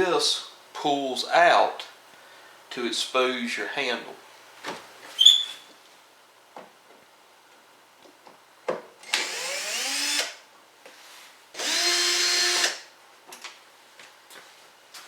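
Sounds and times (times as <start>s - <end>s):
cordless drill running: 9.0s - 10.4s, 11.6s - 12.9s.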